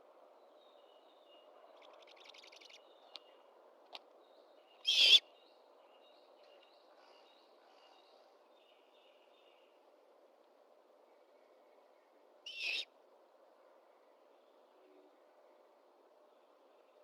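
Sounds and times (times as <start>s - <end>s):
low background hiss: 0.0s - 17.0s
songbirds chirping: 0.1s - 17.0s
owl harsh raspy screech: 4.9s - 5.2s.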